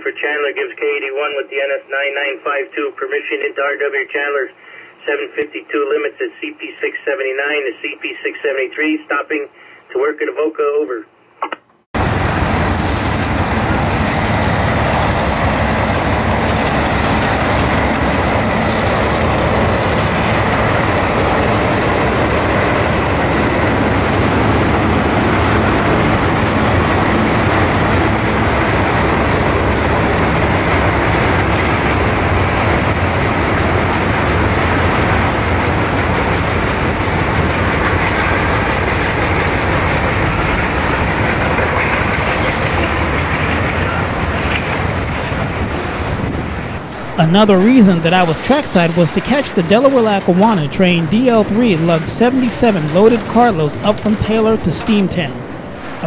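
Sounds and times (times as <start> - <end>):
freight train rumbling past: 12.0 - 56.0.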